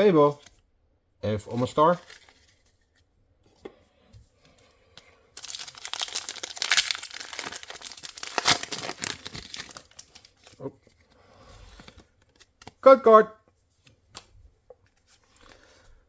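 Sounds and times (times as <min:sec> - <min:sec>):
foil wrapper torn and crinkled: 0:05.4 - 0:10.6.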